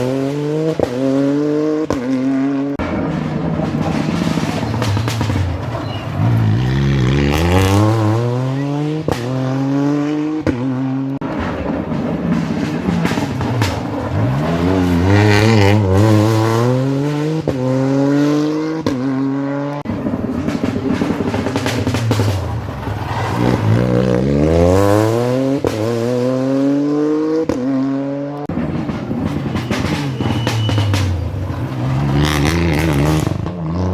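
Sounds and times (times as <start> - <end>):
rally car engines accelerating: 0.0 - 33.9.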